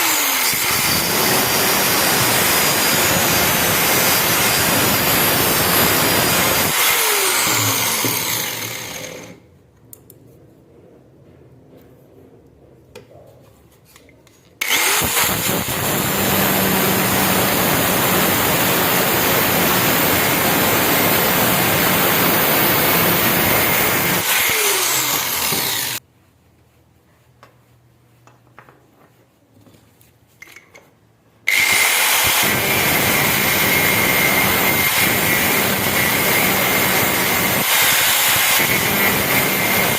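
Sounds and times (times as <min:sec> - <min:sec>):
electric grinder on metal: 0:00.0 - 0:09.4, 0:14.6 - 0:26.0, 0:31.5 - 0:39.9.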